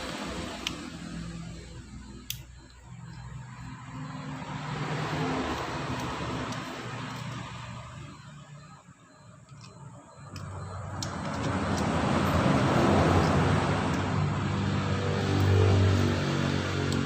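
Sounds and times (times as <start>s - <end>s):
engine running: 10.2s - 17.0s.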